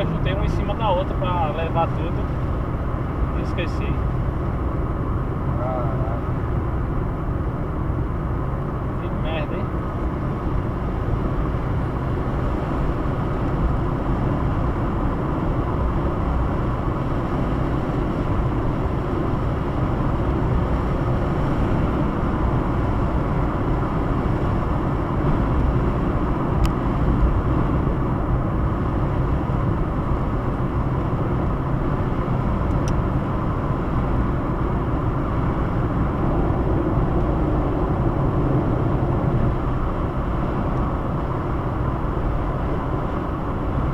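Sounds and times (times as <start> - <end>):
car cabin road noise: 0.0 - 43.9.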